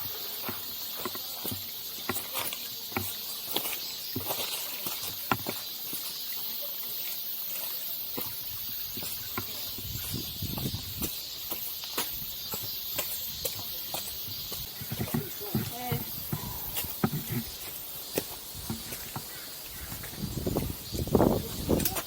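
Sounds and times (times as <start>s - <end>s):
wind on microphone: 8.5s - 11.2s, 19.7s - 22.0s.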